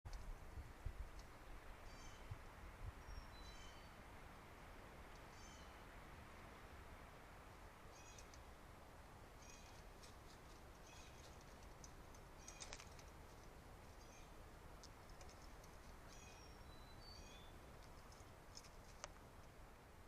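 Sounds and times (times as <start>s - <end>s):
low steady hiss: 0.1s - 20.0s.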